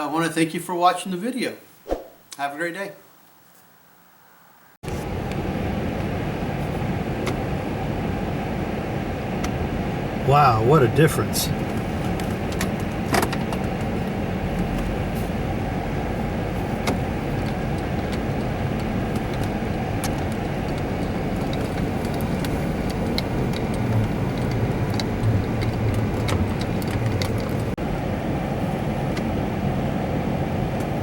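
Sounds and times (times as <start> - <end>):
car road and engine rumble: 4.8 - 31.0
faint clicks and rattles: 17.3 - 27.8.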